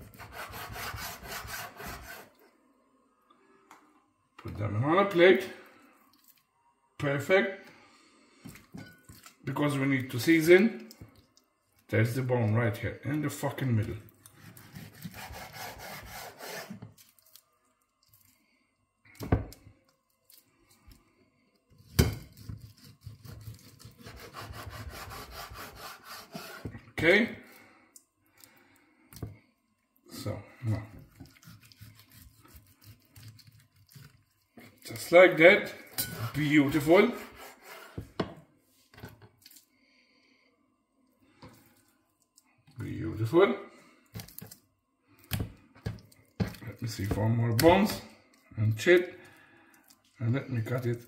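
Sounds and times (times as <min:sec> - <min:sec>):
knife cutting raw chicken: 0:14.3 - 0:17.4, 0:21.7 - 0:26.8, 0:30.9 - 0:35.2, 0:35.9 - 0:38.3.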